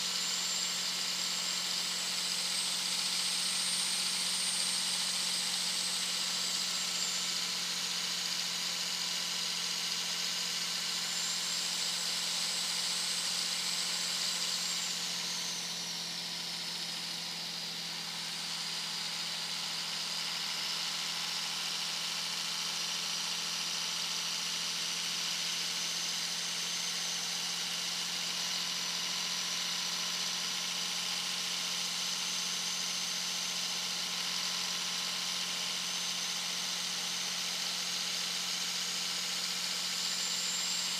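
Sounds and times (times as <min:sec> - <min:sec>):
engine drone: 0:13.6 - 0:20.4.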